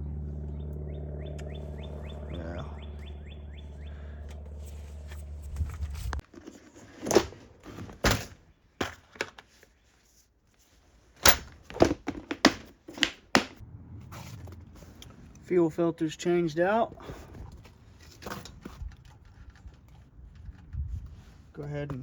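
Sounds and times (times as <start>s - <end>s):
steady low hum: 0.0s - 6.2s
metal parts knocking and clicking: 11.2s - 13.6s.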